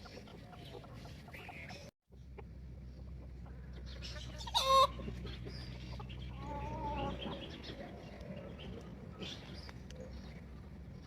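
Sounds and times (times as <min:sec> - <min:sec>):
chickens clucking: 0:00.0 - 0:10.1
chicken squawk: 0:04.0 - 0:05.1.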